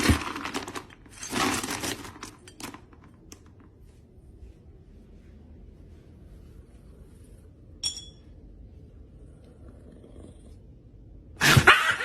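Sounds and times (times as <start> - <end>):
short clink with high ring: 7.8 - 8.4.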